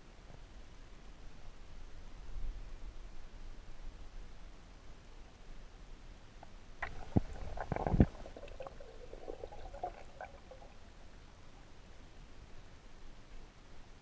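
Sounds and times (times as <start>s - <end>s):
water gurgling and bubbling: 6.8s - 11.4s.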